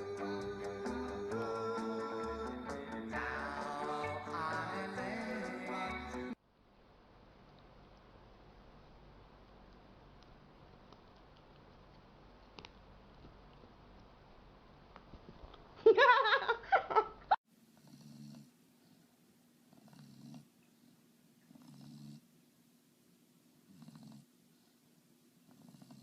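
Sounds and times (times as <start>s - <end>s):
cat purring or snoring: 17.8s - 18.6s, 19.7s - 20.5s, 21.5s - 22.3s, 23.7s - 24.3s, 25.5s - 26.0s.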